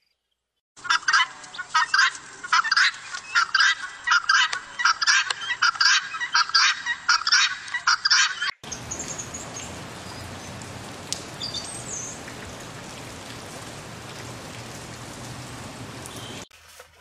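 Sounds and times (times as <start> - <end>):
guineafowl calling harshly: 0.8 - 8.6.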